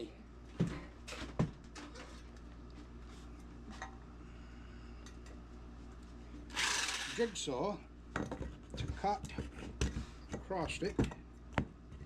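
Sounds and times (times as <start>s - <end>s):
steady low hum: 0.0s - 12.0s
loud burst of noise: 6.6s - 7.3s.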